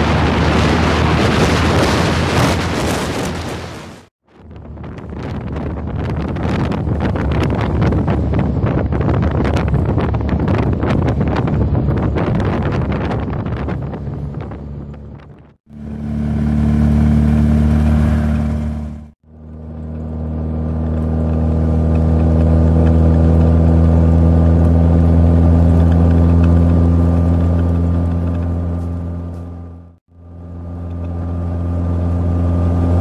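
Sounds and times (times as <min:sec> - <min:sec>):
wind buffeting microphone: 0:00.0 - 0:15.6
car engine cruising: 0:04.4 - 0:33.0.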